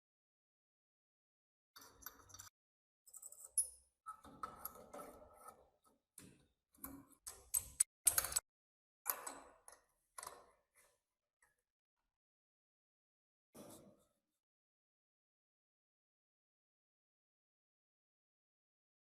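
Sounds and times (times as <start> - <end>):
small metal parts clicking: 7.3 - 8.4.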